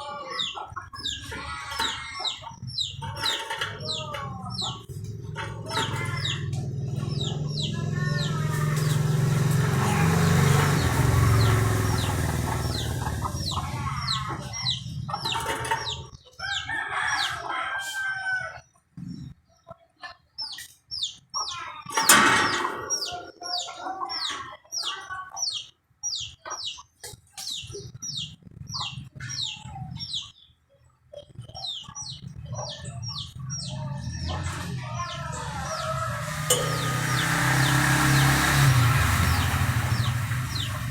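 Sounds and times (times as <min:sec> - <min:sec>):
birds chirping: 0:00.0 - 0:17.5, 0:18.6 - 0:40.9
low hum: 0:35.5 - 0:40.9.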